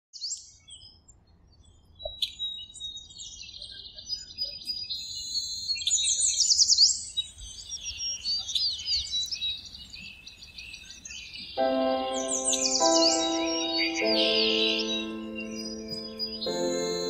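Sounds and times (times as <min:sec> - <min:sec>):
birds chirping and trilling: 0:00.2 - 0:17.0.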